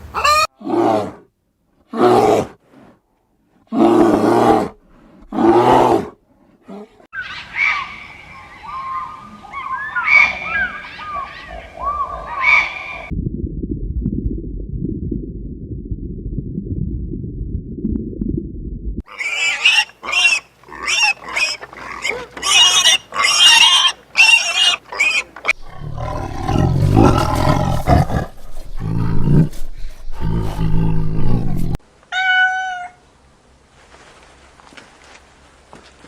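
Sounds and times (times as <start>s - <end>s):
shrill animal cries: 0.2s - 0.5s, 32.1s - 33.0s
low animal rumbling: 25.5s - 31.8s
deep animal grunts: 25.6s - 31.8s.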